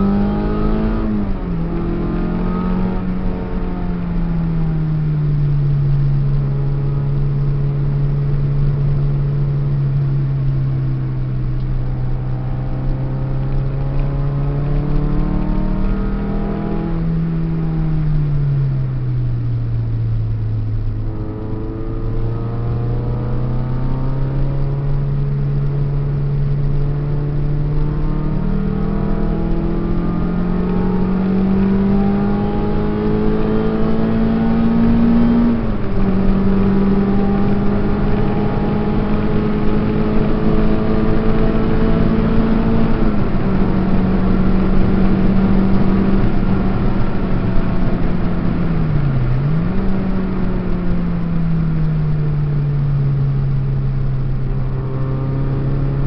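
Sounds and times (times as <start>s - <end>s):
car engine while driving: 0.0s - 56.0s.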